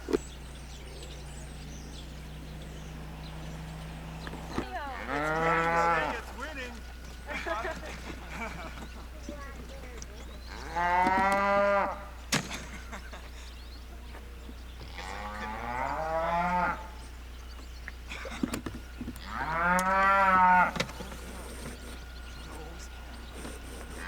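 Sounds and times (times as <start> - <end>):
cow mooing: 1.6 - 7.8, 10.4 - 12.2, 14.8 - 17.0, 19.2 - 21.1.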